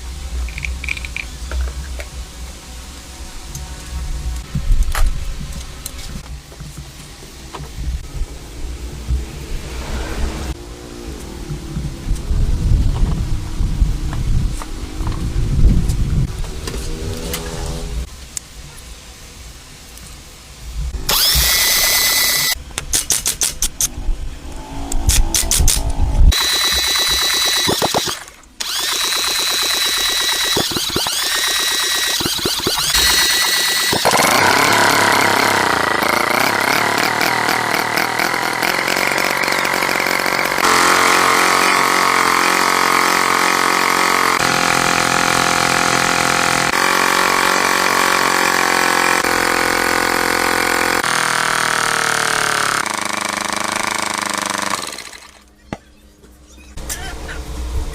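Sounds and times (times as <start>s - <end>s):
tractor engine running: 25.6s - 55.5s.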